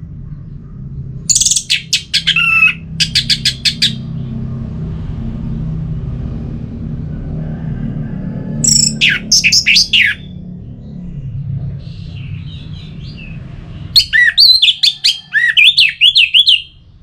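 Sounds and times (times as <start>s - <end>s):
low rumble: 0.0s - 14.3s
bird singing: 0.3s - 4.4s, 8.6s - 17.0s.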